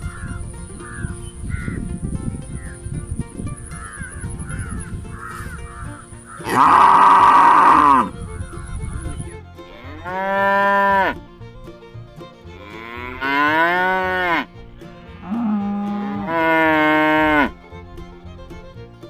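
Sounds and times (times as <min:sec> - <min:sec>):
cow mooing: 0:06.4 - 0:08.1, 0:09.8 - 0:11.2, 0:12.6 - 0:14.5, 0:15.1 - 0:17.6.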